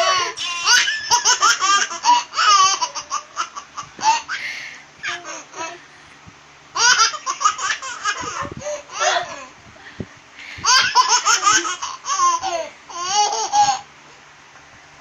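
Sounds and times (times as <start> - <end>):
high-pitched breathy laughter: 3.9 - 6.0.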